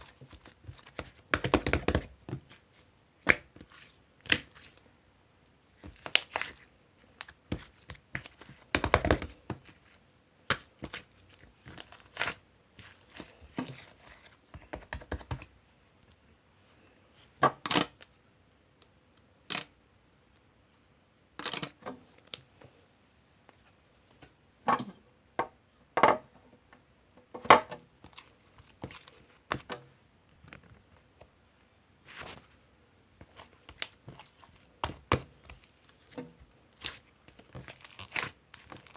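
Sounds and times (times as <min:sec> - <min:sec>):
clicks and crinkling handling noise: 0:28.0 - 0:32.6, 0:33.2 - 0:38.9.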